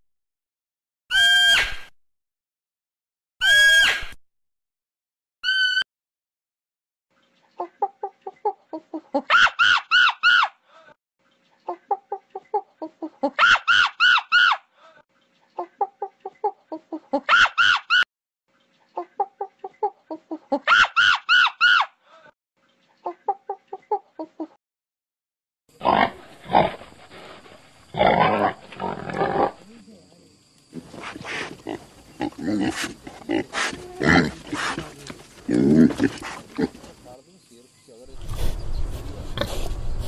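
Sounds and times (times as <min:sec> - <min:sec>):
chicken clucking and squawking: 0:11.6 - 0:14.3, 0:15.5 - 0:17.9, 0:18.9 - 0:21.6, 0:23.0 - 0:24.6.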